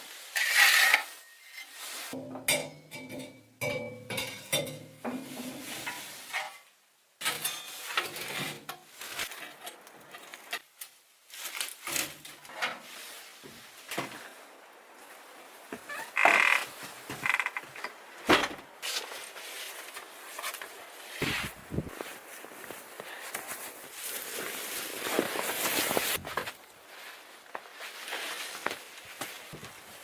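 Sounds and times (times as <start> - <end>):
cookware and utensils clinking: 2.2 - 5.4.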